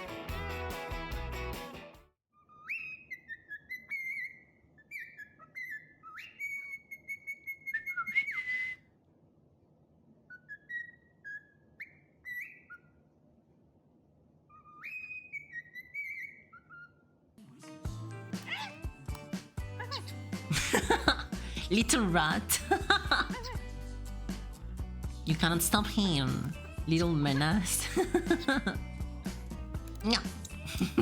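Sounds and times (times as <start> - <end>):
bird whistling a tune: 2.4 - 8.9, 10.3 - 12.9, 14.5 - 17.0.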